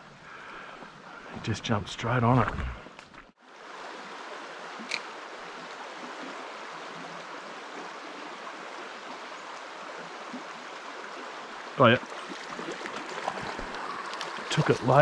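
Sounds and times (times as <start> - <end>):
creek water running over rocks: 0.0 - 15.0.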